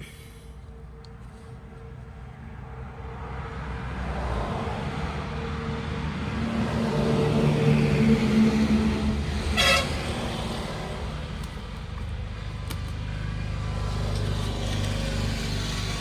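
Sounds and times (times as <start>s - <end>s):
vehicle engine hum: 0.0s - 16.0s
car horn toot: 9.5s - 10.2s.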